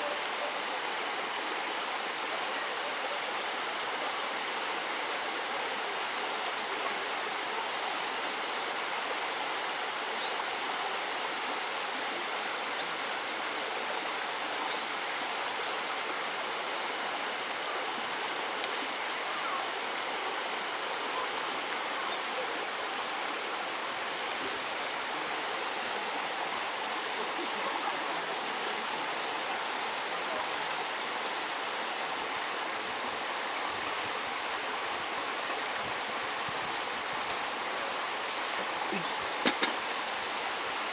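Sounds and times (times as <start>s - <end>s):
water rushing in a stream: 0.0s - 40.9s.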